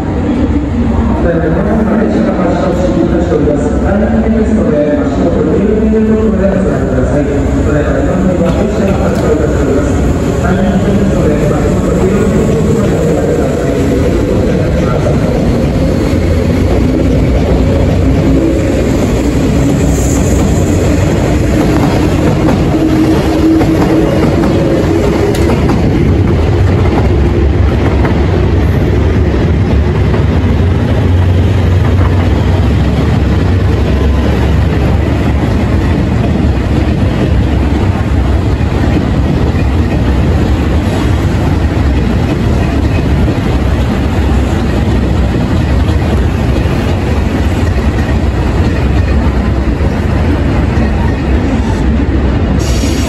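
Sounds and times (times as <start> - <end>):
train rumbling on tracks: 0.0 - 53.0.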